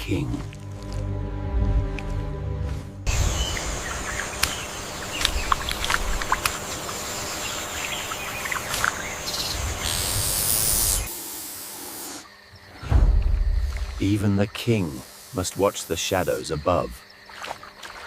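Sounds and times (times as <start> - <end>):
bird chirps: 3.1 - 6.2, 6.8 - 10.0
insects hissing: 3.1 - 18.0
high-pitched hiss: 6.7 - 17.0.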